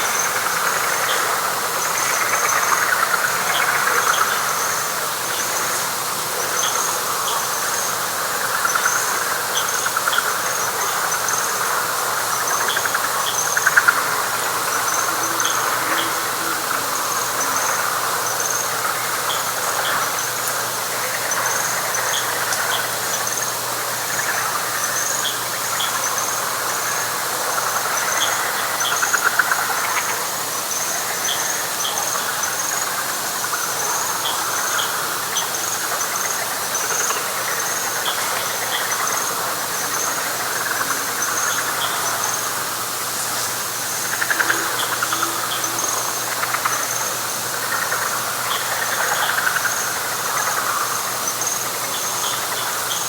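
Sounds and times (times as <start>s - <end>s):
frogs trilling: 0.0s - 53.0s
rapidly pulsing insect call: 0.0s - 53.0s.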